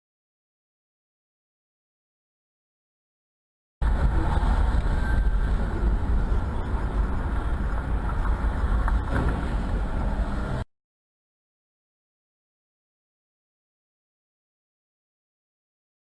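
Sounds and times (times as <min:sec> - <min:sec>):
car engine and road noise: 0:03.8 - 0:10.7.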